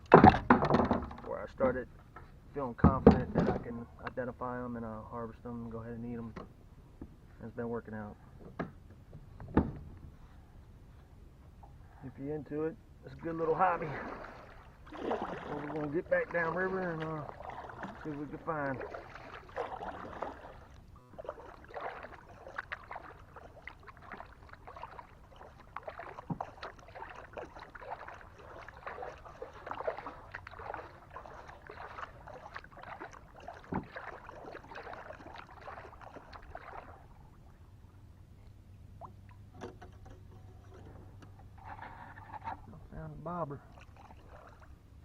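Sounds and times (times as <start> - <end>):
paddle splashing in water: 13.1 - 38.0, 38.6 - 43.0, 43.6 - 45.0
water dripping: 14.9 - 37.0.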